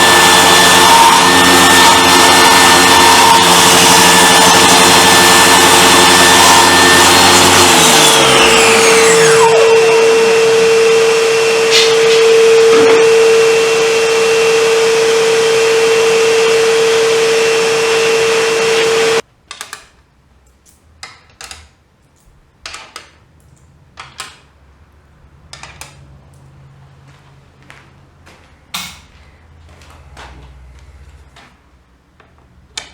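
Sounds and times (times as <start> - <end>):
table saw motor winding down: 0.0 - 19.2.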